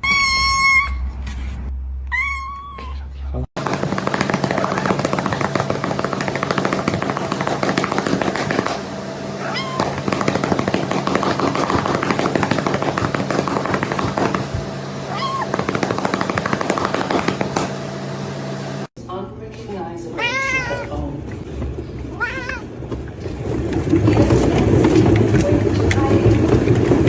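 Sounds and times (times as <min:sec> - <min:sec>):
cat meowing: 0:02.1 - 0:03.1, 0:09.4 - 0:10.0, 0:15.1 - 0:15.5, 0:20.2 - 0:21.0, 0:22.1 - 0:22.7
steady low hum: 0:03.0 - 0:27.0
rapid crackling and clicking: 0:03.6 - 0:08.8, 0:15.5 - 0:17.7.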